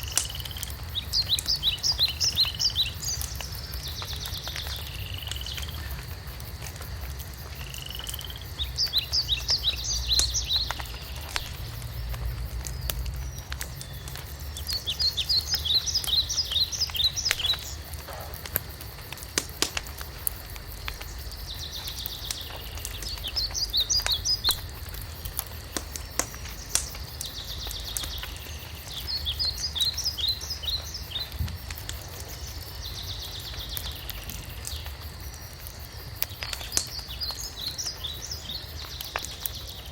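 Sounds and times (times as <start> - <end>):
songbird singing: 0.0 - 6.9, 7.5 - 35.1, 35.7 - 39.9
wood fire crackling and popping: 0.0 - 39.9.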